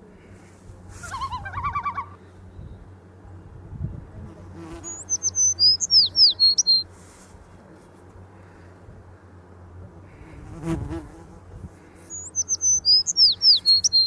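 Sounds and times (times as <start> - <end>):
bird rapid chattering call: 4.8 - 6.8, 12.1 - 14.0
songbird whistled song: 4.8 - 6.9, 12.1 - 14.0.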